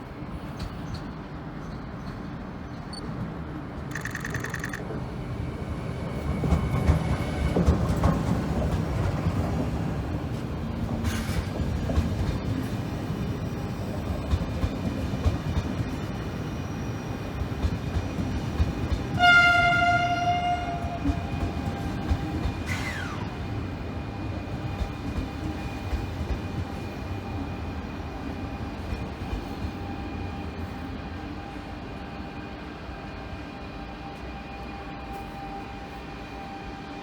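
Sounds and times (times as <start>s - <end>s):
train rumble and wheel clatter: 0.0s - 37.0s
train horn blast: 19.1s - 21.3s.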